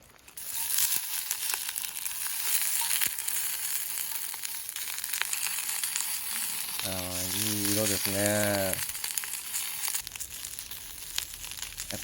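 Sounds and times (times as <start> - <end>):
sausages sizzling in fat: 0.0 - 12.0.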